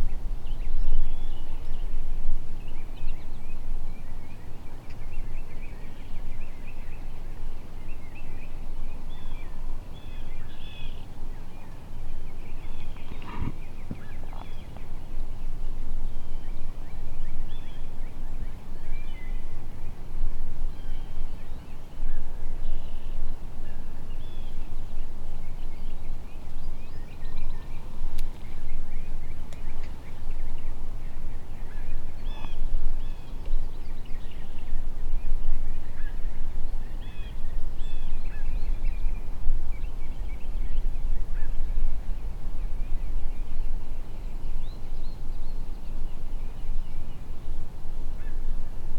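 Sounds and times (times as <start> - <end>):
steady low rumble: 0.0 - 48.9
short bird calls: 8.0 - 15.1, 25.5 - 34.7.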